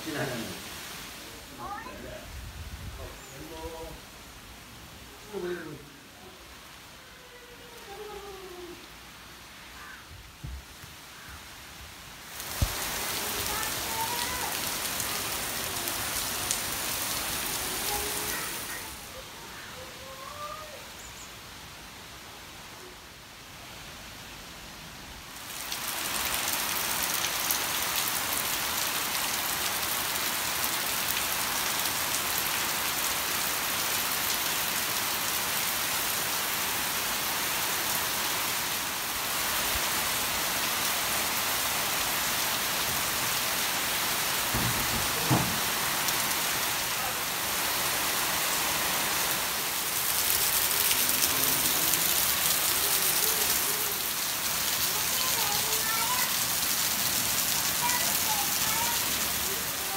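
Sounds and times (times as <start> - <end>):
rain falling steadily: 0.0 - 59.9
brief thump: 44.5 - 45.6.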